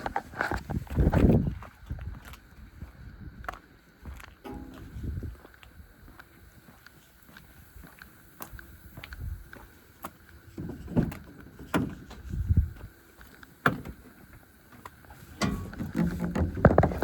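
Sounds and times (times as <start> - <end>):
handling clicks and knocks: 15.4 - 17.0.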